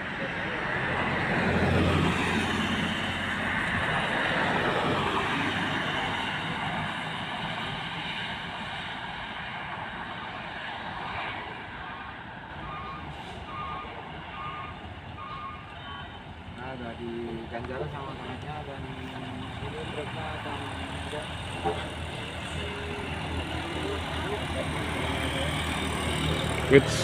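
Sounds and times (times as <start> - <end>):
road noise: 0.0 - 27.0
heavy truck engine running: 11.8 - 27.0
truck reversing alarm beeping: 11.9 - 16.4.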